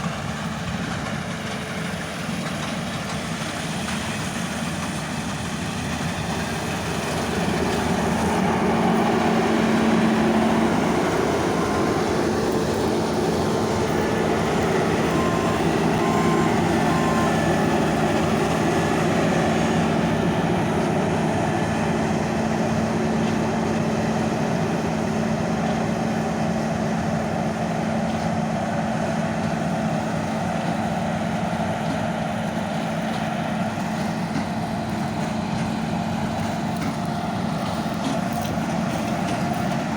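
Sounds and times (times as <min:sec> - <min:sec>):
heavy diesel engine running: 0:00.0 - 0:39.9
short electronic beeps: 0:14.0 - 0:18.6.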